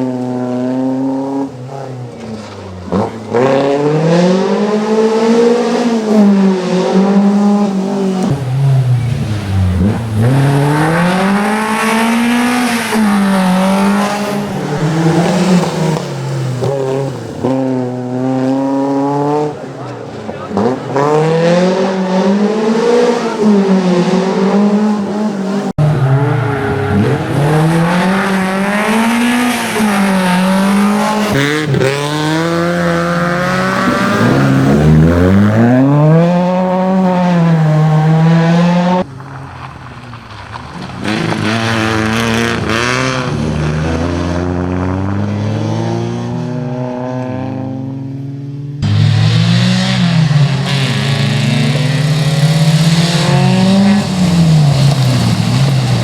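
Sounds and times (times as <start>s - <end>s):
rally car engine revving: 0.0s - 39.7s, 40.4s - 56.0s.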